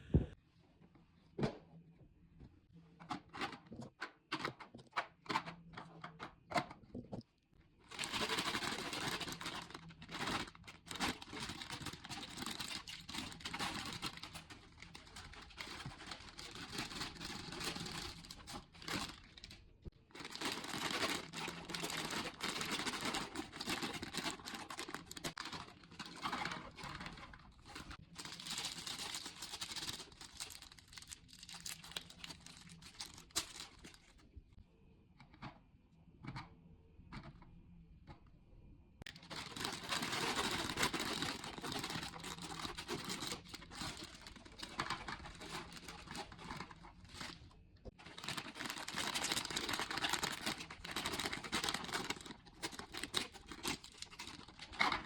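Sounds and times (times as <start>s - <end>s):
plastic snack wrappers crinkling: 7.8s - 34.3s, 39.1s - 55.0s.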